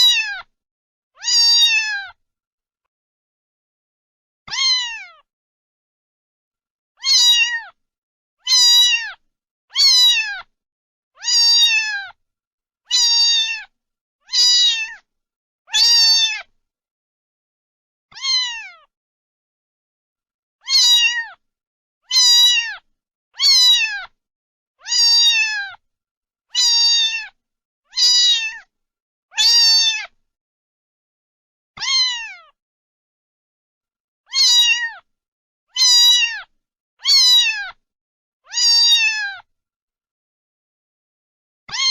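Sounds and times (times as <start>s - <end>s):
cat meowing: 0.0s - 0.5s, 1.2s - 2.2s, 4.5s - 5.3s, 7.0s - 7.8s, 8.4s - 10.5s, 11.2s - 12.2s, 12.9s - 15.0s, 15.7s - 16.5s, 18.1s - 18.9s, 20.6s - 21.4s, 22.1s - 24.2s, 24.8s - 25.8s, 26.5s - 28.7s, 29.3s - 30.2s, 31.8s - 32.6s, 34.3s - 35.1s, 35.7s - 37.8s, 38.5s - 39.5s, 41.7s - 41.9s.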